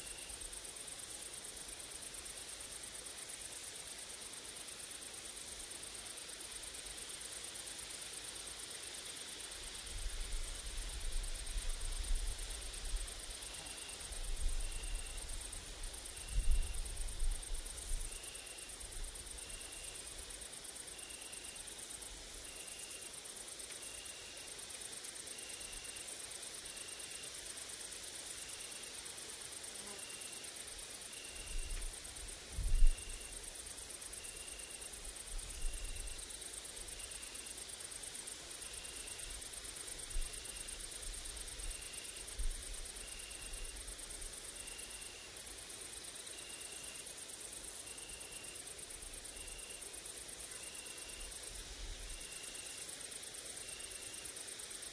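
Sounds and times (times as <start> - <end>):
grasshoppers and crickets buzzing: 0.0 - 54.9
insects chirring: 0.0 - 54.9
wind rumble on microphone: 32.5 - 33.2.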